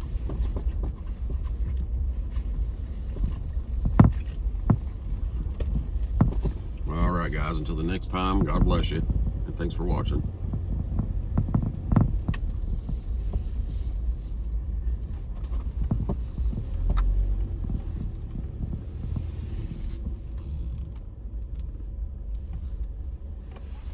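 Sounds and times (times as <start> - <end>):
road and engine rumble: 0.0 - 23.9
cabin clicks and creaks: 2.8 - 13.6.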